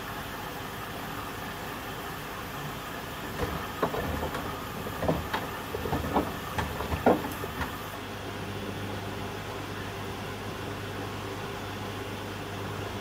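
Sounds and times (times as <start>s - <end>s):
washing machine humming: 0.0s - 13.0s
washing machine knocks and clunks: 3.3s - 8.0s.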